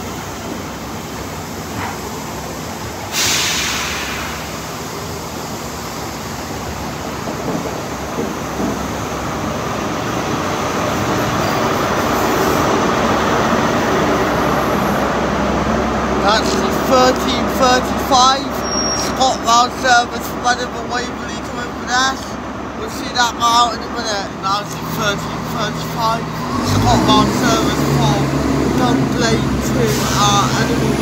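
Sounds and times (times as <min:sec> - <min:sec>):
sudden loud hiss: 0:00.0 - 0:08.4, 0:24.1 - 0:31.0
diesel locomotive approaching: 0:00.0 - 0:31.0
train coaches rumbling past: 0:00.0 - 0:31.0.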